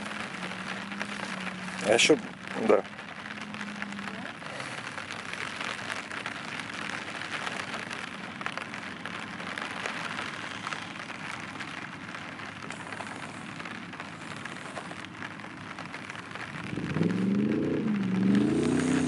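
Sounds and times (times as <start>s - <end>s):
light rain on microphone: 0.0s - 19.0s
distant engine running: 12.4s - 19.0s.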